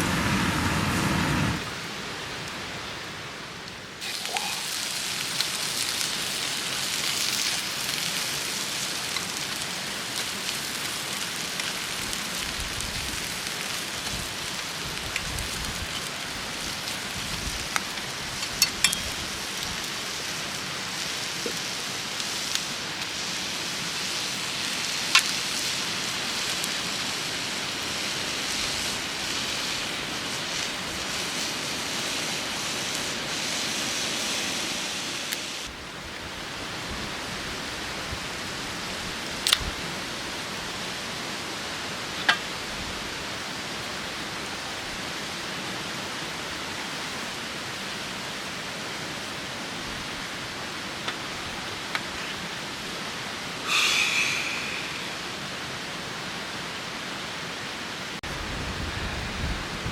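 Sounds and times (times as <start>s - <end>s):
steady rushing noise: 0.0s - 3.0s, 53.5s - 56.2s.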